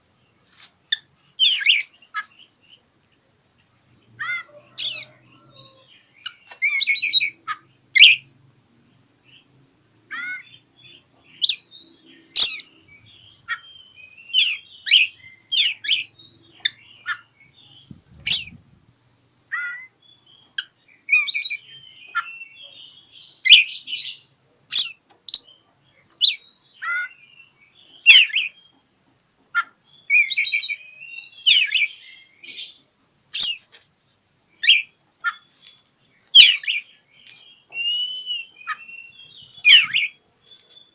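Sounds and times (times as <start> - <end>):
bird singing sharp whistles: 37.8 - 40.2.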